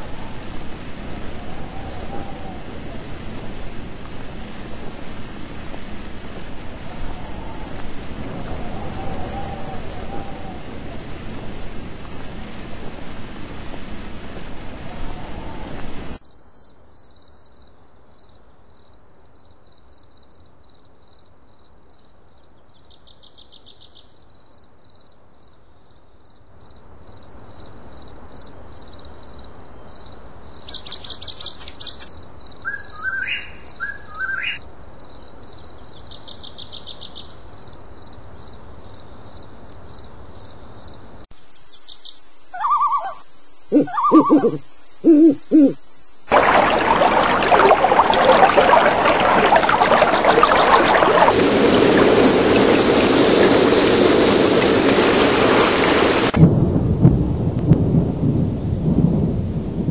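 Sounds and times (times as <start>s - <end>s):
birds chirping: 41.9s - 45.8s, 49.1s - 56.4s
rushing noise: 46.3s - 56.8s.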